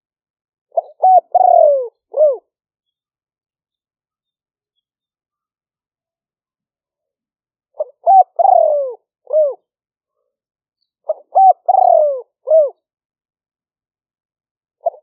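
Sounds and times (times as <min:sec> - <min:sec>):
dove cooing: 0:00.7 - 0:02.5, 0:07.8 - 0:09.7, 0:11.1 - 0:12.8.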